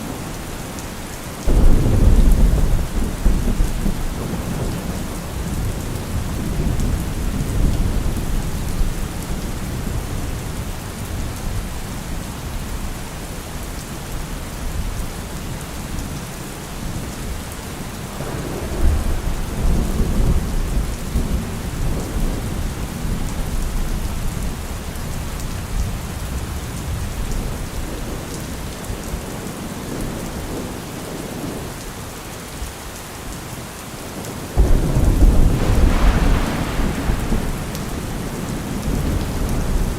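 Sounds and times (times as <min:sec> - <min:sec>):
steady rain: 0:00.0 - 0:39.9
low rolling thunder: 0:01.4 - 0:12.9, 0:18.1 - 0:31.6, 0:34.6 - 0:39.9.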